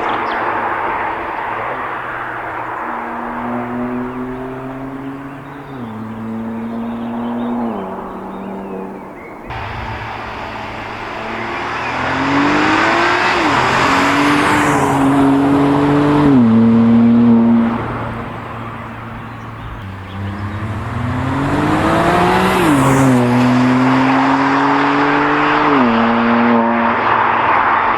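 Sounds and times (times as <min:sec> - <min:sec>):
car engine accelerating hard: 0:00.0 - 0:27.9.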